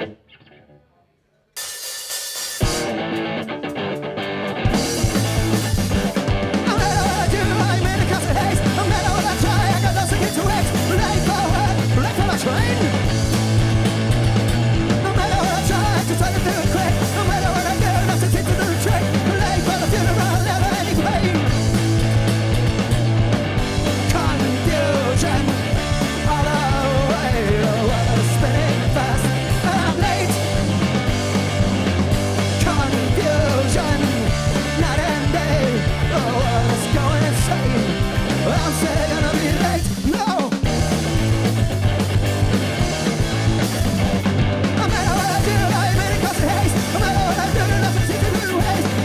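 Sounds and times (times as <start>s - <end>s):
rock band playing: 1.6s - 49.0s
person singing: 6.6s - 13.1s, 15.0s - 21.6s, 23.9s - 30.6s, 32.5s - 40.8s, 44.8s - 49.0s.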